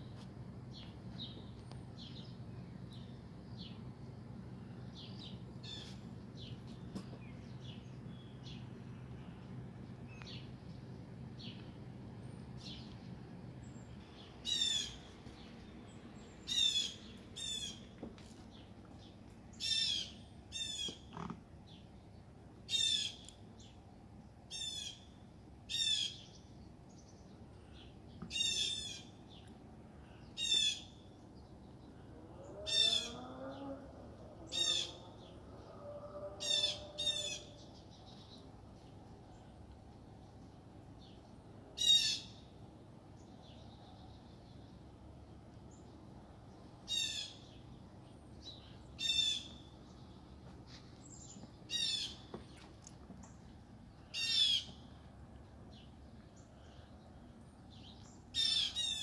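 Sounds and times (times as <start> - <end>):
faint low hum: 0.0 - 59.0
bird calling: 4.9 - 9.2, 13.7 - 15.2, 16.4 - 18.0, 31.9 - 38.3, 41.8 - 42.4, 46.9 - 47.6, 48.4 - 50.1, 50.7 - 55.0, 57.8 - 59.0.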